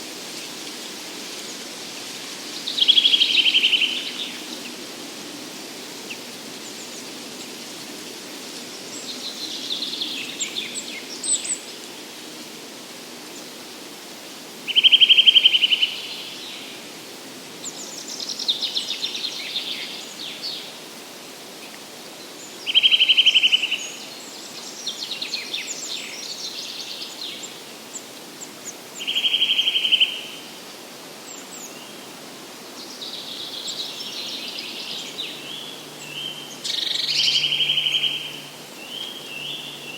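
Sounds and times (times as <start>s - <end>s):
forest background: 0.0s - 39.9s
songbirds singing: 2.6s - 4.9s, 6.0s - 11.9s, 21.6s - 30.6s, 31.2s - 39.9s.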